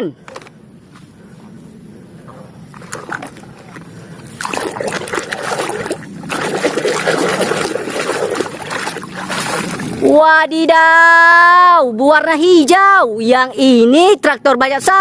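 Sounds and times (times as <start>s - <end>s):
water splashing in a basin: 2.7s - 10.1s.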